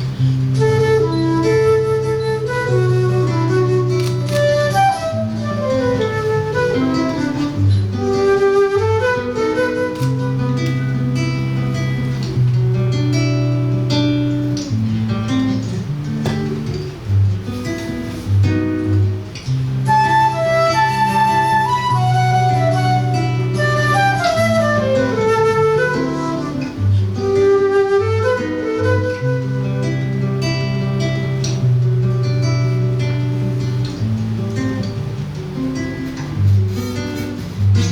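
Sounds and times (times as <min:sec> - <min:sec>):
flute melody: 0:00.0 - 0:14.8, 0:19.6 - 0:31.8
acoustic guitar bass notes and chords: 0:00.0 - 0:37.9.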